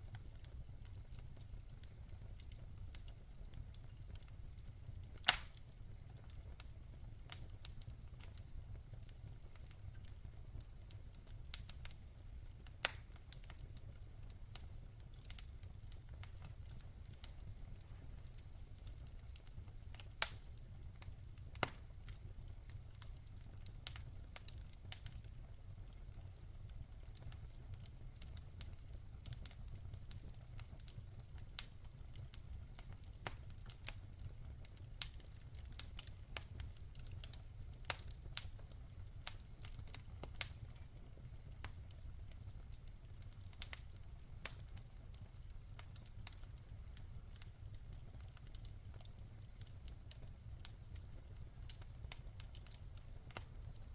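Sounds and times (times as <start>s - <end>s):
campfire crackling and popping: 0.0s - 53.9s
low rumble of fire: 0.0s - 53.9s.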